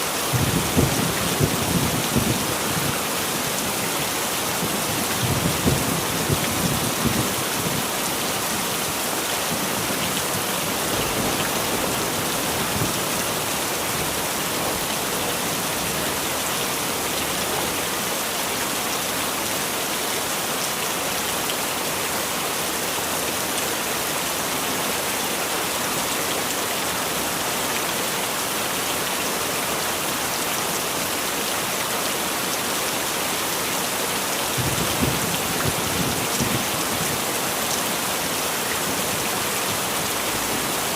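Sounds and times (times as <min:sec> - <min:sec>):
heavy rain falling: 0:00.0 - 0:40.9
distant thunder rumbles: 0:09.5 - 0:15.0.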